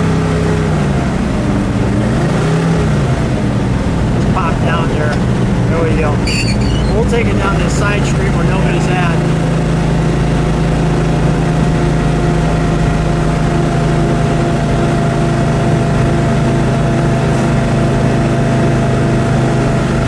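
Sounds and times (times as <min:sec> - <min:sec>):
car engine droning: 0:00.0 - 0:20.0.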